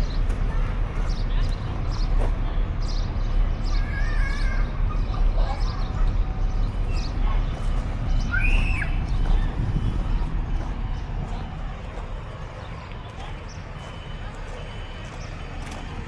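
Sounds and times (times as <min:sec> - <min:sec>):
low street rumble: 0:00.0 - 0:16.0
footsteps ticking: 0:06.6 - 0:16.0.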